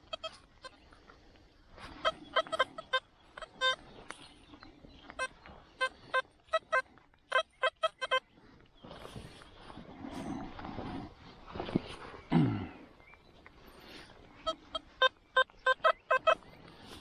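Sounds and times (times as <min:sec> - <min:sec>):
metal detector beeps: 0:02.0 - 0:03.8.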